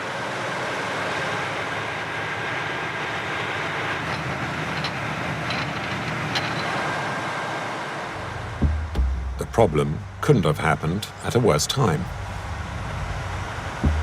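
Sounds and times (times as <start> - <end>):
boat engine running: 8.1 - 14.0.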